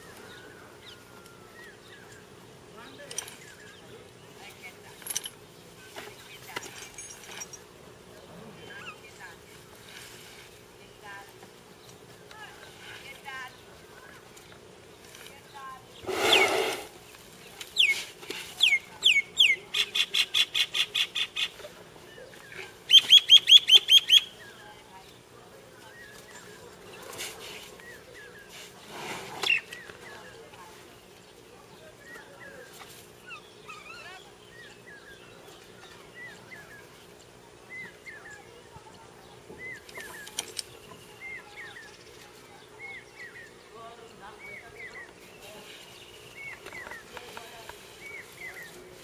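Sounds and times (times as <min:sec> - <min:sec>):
bird calling loudly: 0:16.0 - 0:17.0
elephant blowing dust whoosh: 0:16.0 - 0:17.0.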